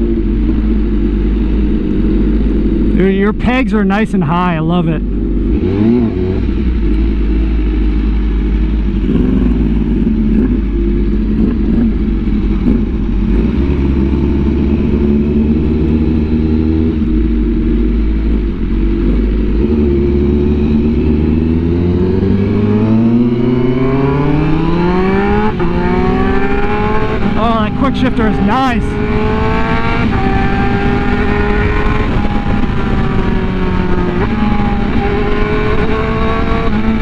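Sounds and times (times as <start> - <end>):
motorcycle engine revving: 0.0 - 3.2, 5.0 - 37.0.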